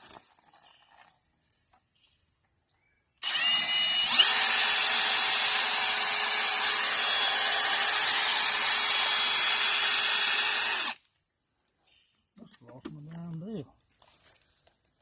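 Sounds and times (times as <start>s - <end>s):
electric drill whining: 3.2s - 11.0s.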